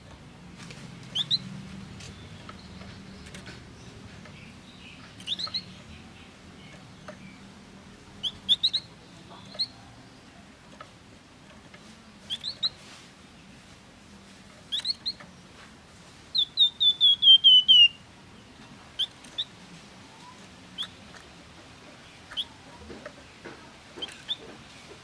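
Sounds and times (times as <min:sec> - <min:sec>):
songbird whistled chirps: 0:01.1 - 0:01.5, 0:05.2 - 0:05.8, 0:08.2 - 0:09.8, 0:12.3 - 0:12.8, 0:14.7 - 0:15.2, 0:16.3 - 0:18.0.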